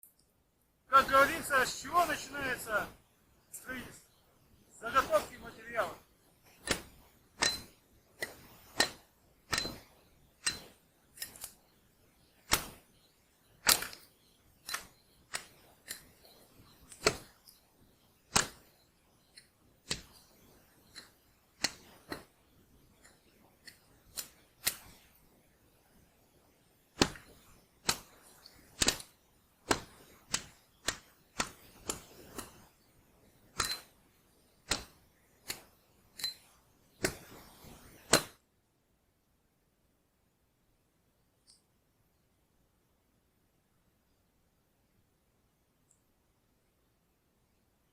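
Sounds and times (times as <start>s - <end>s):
sharp knocks with ringing: 7.4s - 7.7s, 8.8s - 10.8s.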